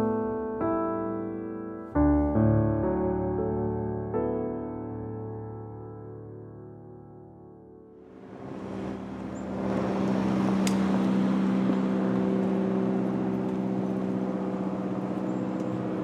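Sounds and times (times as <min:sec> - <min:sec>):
vehicle engine humming: 0:08.0 - 0:16.0.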